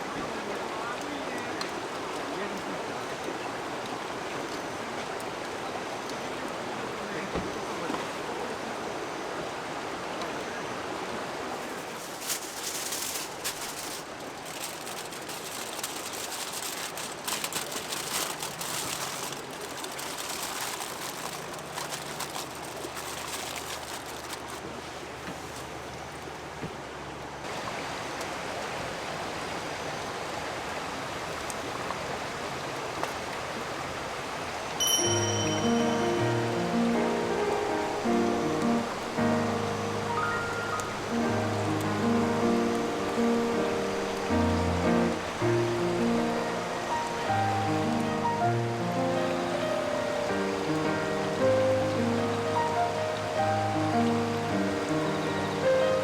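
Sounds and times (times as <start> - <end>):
river rushing: 0.0 - 56.0
handling clicks and rustles: 11.5 - 25.8
music: 34.8 - 56.0.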